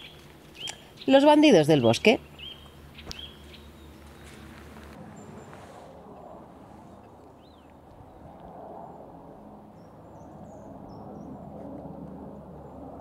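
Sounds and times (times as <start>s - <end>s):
songbird calls: 0.0s - 5.7s
outdoor background hum: 0.0s - 13.0s.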